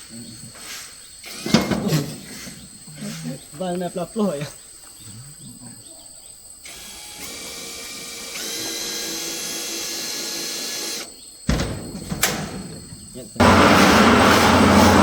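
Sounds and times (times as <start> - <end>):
power tool motor whining: 6.6 - 11.1, 13.4 - 15.0
loud thump: 11.5 - 15.0.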